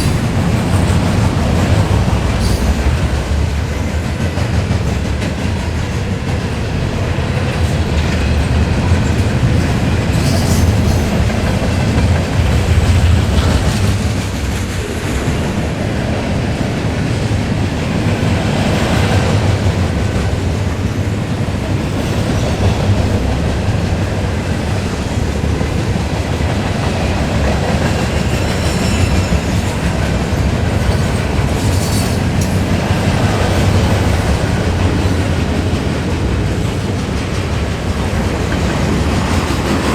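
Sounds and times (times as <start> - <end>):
train wheels clickety-clack: 0.0 - 39.9
high wheel squeals: 28.0 - 32.6.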